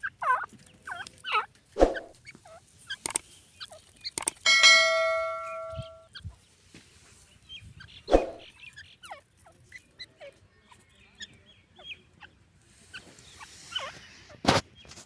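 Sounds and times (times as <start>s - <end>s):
francolins chirping: 2.2s - 6.5s, 7.1s - 14.8s.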